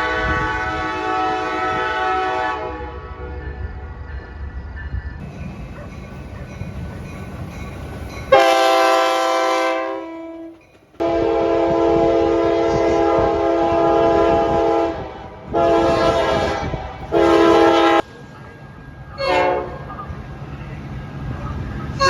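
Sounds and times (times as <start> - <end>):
train air horn blasts: 0.0 - 3.5, 8.3 - 18.1, 19.2 - 19.8
low train rumble: 0.0 - 22.0.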